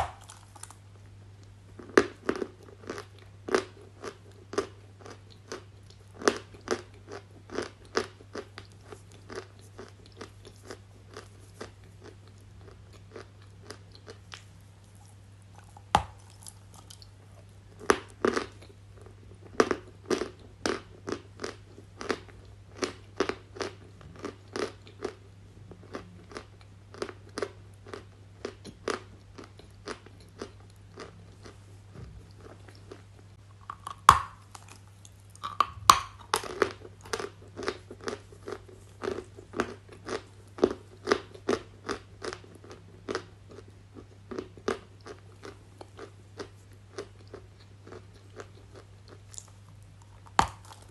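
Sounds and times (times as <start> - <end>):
crunching and chewing: 0.0 - 50.9
faint low hum: 0.0 - 50.9.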